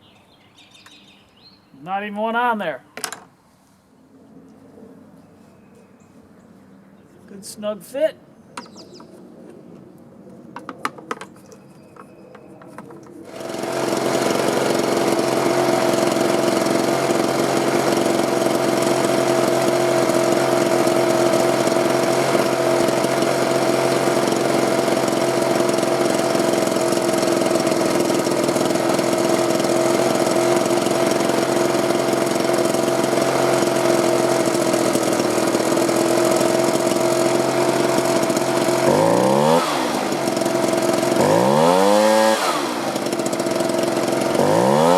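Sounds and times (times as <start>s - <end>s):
leaf blower engine running: 12.0s - 44.9s.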